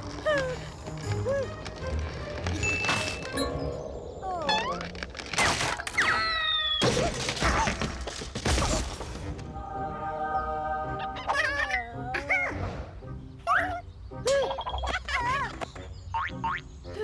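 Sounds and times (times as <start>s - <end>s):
sliding squeaky tones: 0.1s - 6.9s
cartoon music: 10.0s - 12.7s, 13.4s - 17.0s.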